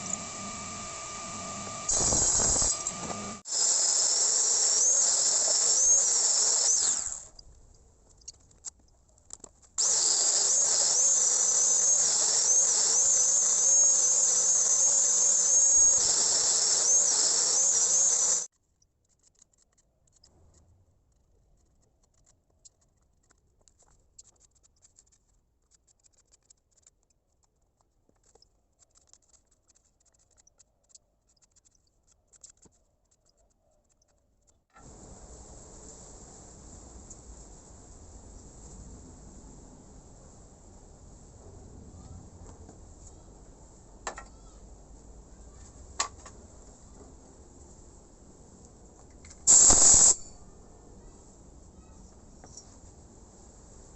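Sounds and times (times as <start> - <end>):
power tool whining: 0.0 - 7.4, 9.8 - 18.5.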